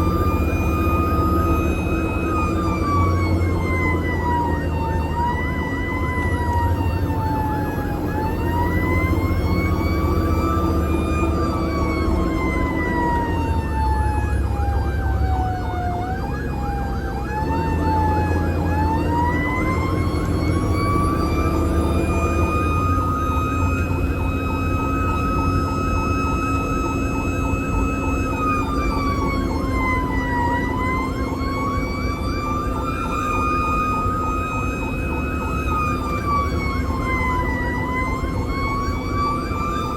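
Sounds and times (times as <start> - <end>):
fire engine siren wailing: 0.0 - 39.9
truck engine rumble: 0.0 - 39.9.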